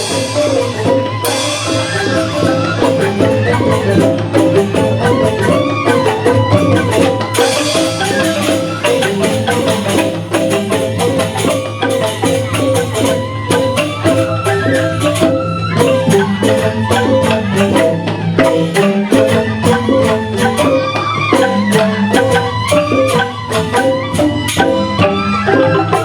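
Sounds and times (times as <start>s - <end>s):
bamboo xylophones playing: 0.0s - 26.0s.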